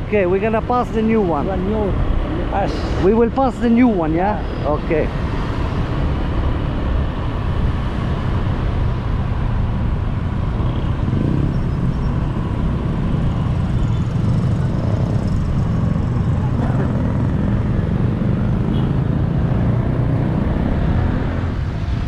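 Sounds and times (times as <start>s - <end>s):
motorbike and traffic rumble: 0.0s - 22.0s.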